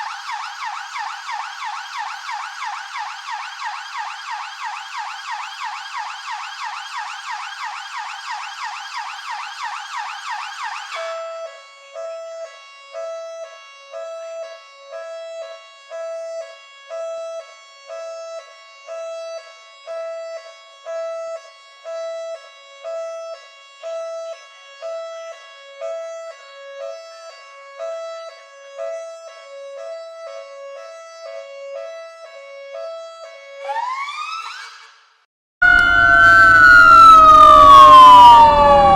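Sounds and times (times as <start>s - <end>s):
police siren yelping: 0.0s - 11.4s, 33.6s - 34.9s, 35.6s - 38.9s
police siren: 0.0s - 35.0s, 35.6s - 38.9s
steady electronic tone: 35.6s - 38.9s.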